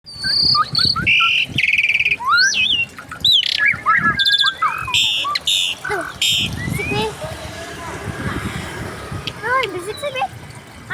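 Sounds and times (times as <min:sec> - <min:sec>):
birds calling in mixed chorus: 0:00.1 - 0:07.8.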